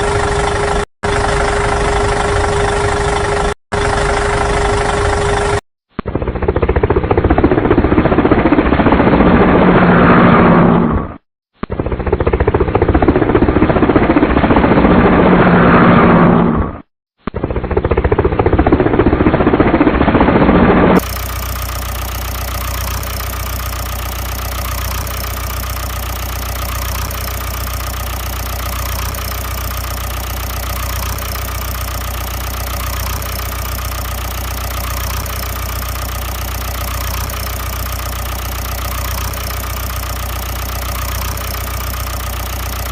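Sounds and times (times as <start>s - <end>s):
engine idling hum: 0.0s - 5.6s, 21.0s - 42.9s
loud engine running: 0.0s - 5.6s, 21.0s - 42.9s.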